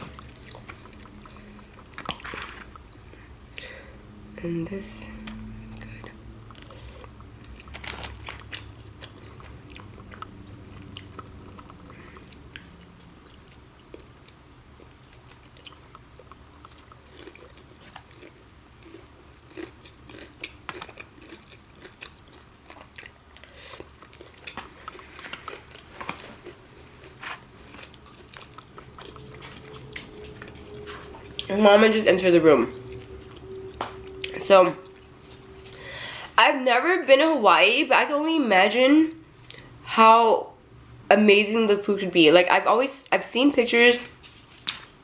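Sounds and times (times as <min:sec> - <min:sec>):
person chewing crunchy food: 0:00.0 - 0:03.5, 0:05.4 - 0:31.6, 0:32.8 - 0:36.2.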